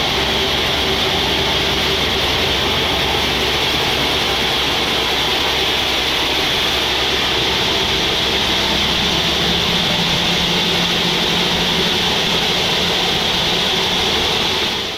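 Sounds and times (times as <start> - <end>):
low hum: 0.0 - 14.9
sawmill machinery running: 0.0 - 14.9.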